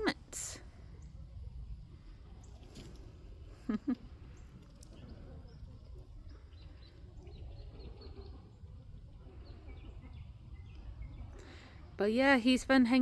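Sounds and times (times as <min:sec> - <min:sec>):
low outdoor rumble: 0:00.0 - 0:13.0
small birds chirping faintly: 0:00.0 - 0:13.0.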